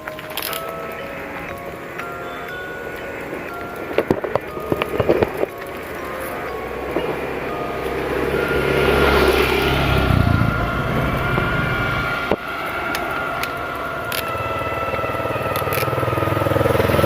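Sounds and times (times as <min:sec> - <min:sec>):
vehicle passing by: 0:06.0 - 0:17.0.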